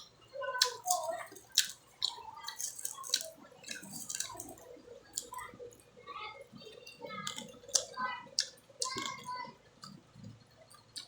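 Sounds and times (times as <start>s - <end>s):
mouth chewing and lip smacks: 0.0s - 5.4s, 7.2s - 11.0s.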